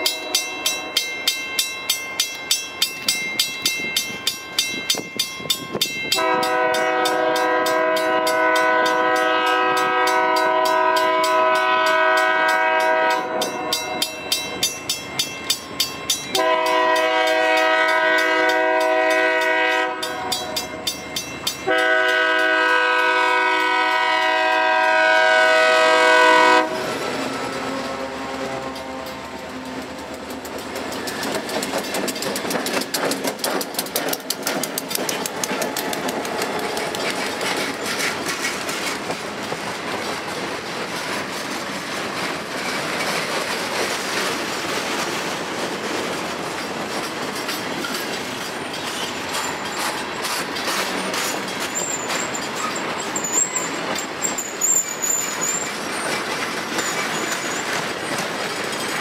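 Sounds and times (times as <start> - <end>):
freight train rumble: 0.0 - 59.0
wheels clacking over rail joints: 0.0 - 59.0
high-pitched wheel squeal: 51.6 - 56.2.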